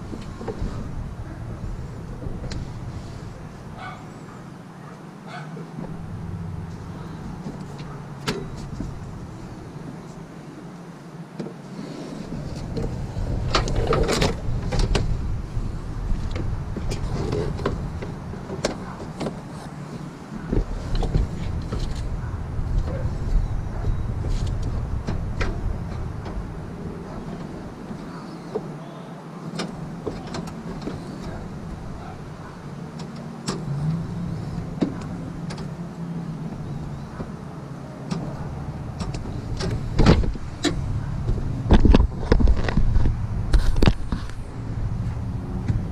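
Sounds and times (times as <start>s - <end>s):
low rumble: 20.4s - 27.8s.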